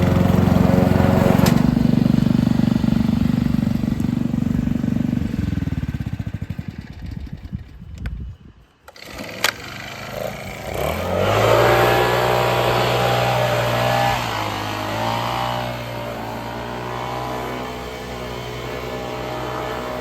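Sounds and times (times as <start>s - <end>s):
small petrol engine revving: 0.0s - 7.9s, 8.9s - 20.0s
loud airy noise: 9.0s - 20.0s.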